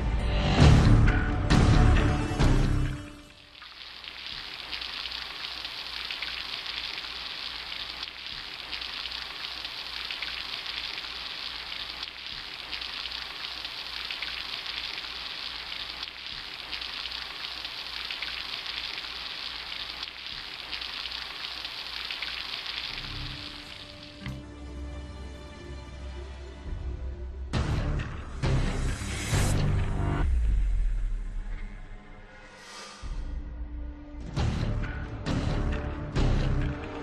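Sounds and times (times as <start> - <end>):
steady hissing noise: 3.2 - 24.4.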